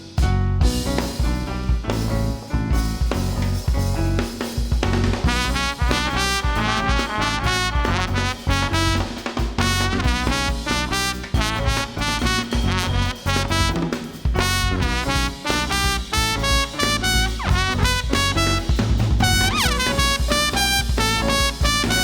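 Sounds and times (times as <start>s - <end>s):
double bass: 0.0s - 22.0s
drum kit: 0.0s - 22.0s
piano: 0.0s - 22.0s
trumpet playing quick notes: 5.2s - 22.0s.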